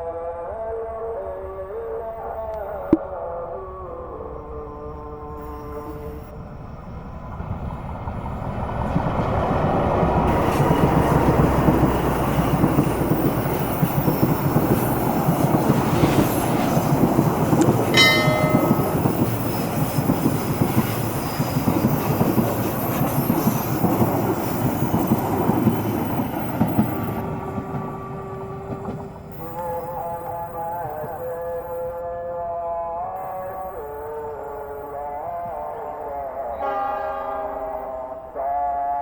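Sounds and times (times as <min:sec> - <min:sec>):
train rumble and wheel clatter: 0:04.0 - 0:31.7.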